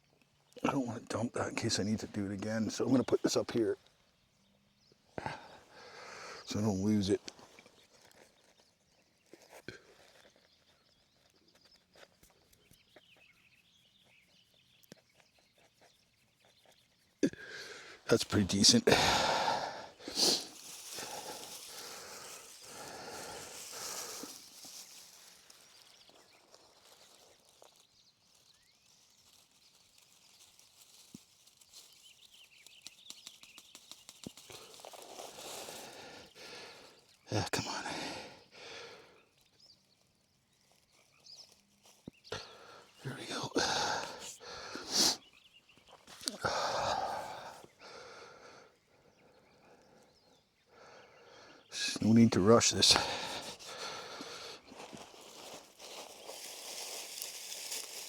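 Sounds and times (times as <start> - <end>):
person blowing breaths: 17.3 - 18.0, 18.9 - 24.5, 43.6 - 45.3, 53.0 - 55.0
person blowing into tinder: 20.0 - 22.1
faint small ticks: 30.1 - 35.8.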